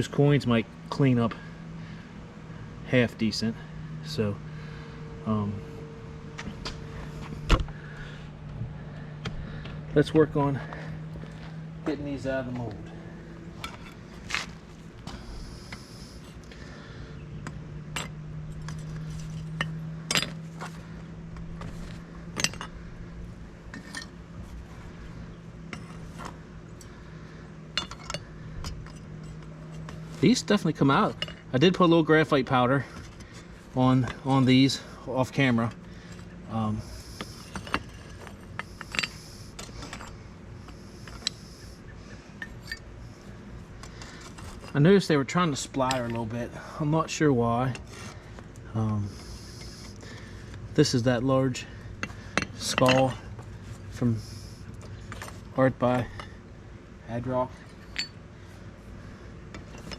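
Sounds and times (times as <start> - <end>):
steady low hum: 0.0 - 59.9
coins clinking from molds: 36.8 - 41.6.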